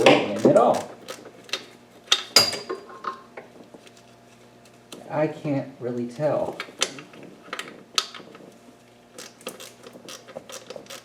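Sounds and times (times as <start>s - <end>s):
tools clicking on engine parts: 0.0s - 2.4s, 9.1s - 11.0s.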